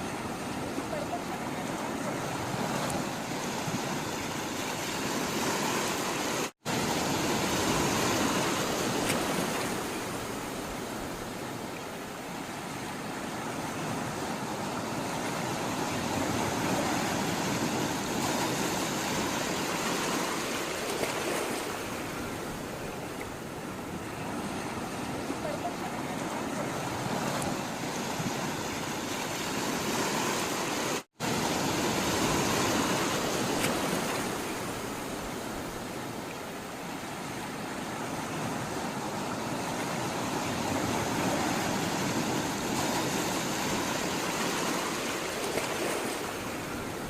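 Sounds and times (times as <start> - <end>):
sea water rushing: 0.0 - 47.0.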